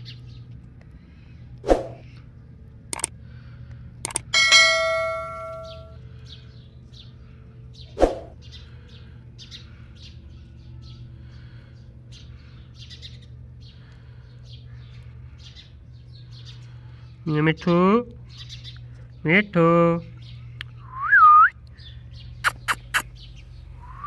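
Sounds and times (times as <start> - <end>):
bell ringing: 4.3 - 6.0
loud sharp call: 22.4 - 23.1
parrot chirping: 22.4 - 23.2.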